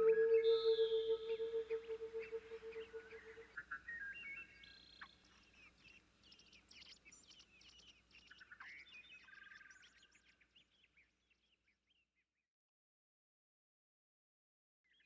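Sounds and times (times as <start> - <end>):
bird whistled notes: 0.0 - 4.8
songbirds chirping: 0.0 - 12.3.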